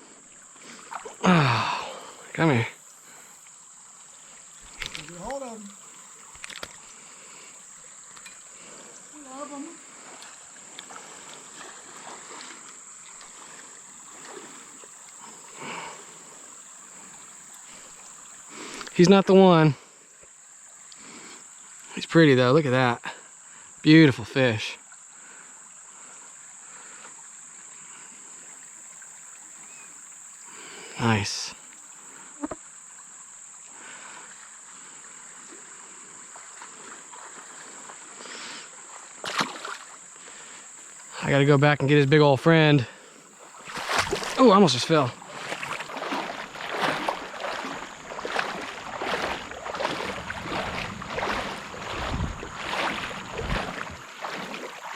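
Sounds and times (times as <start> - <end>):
faint flowing water: 0.0 - 54.9
high-pitched insect drone: 0.8 - 13.0, 28.0 - 33.4, 43.1 - 54.7.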